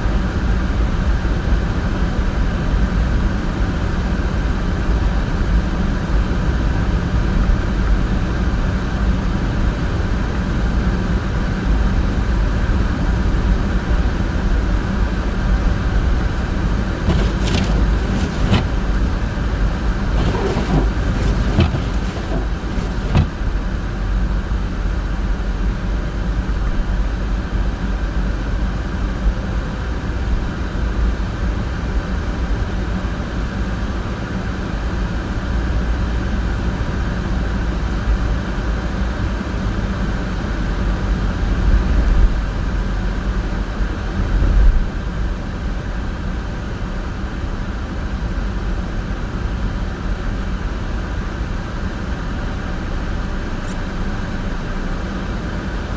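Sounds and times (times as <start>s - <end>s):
engine and tyres rumbling on snow: 15.1s - 23.6s
car bumps: 16.6s - 23.4s.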